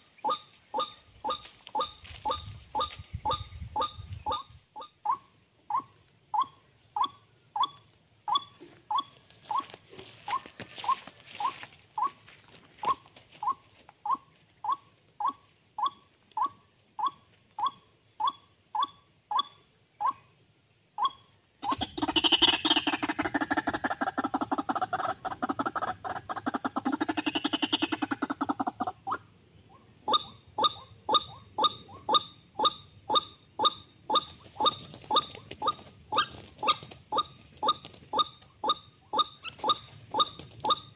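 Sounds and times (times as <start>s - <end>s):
rapid harsh bird calls: 21.0s - 40.9s
waterhen calling: 21.1s - 29.3s, 30.1s - 40.9s.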